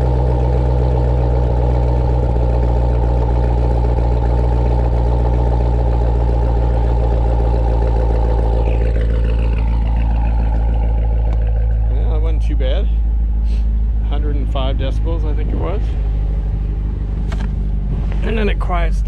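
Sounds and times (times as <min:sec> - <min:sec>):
car engine idling loudly: 0:00.0 - 0:19.0
faint falling whine: 0:13.4 - 0:19.0.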